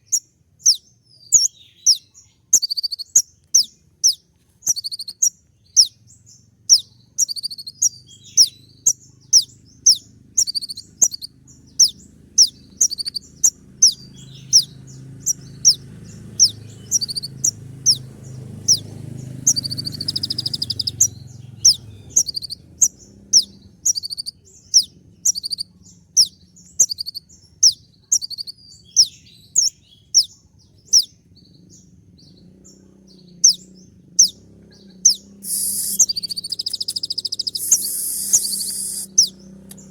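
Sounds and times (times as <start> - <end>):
sunbird chirping: 0.0 - 39.9
short hiss: 35.4 - 36.2, 37.6 - 39.0.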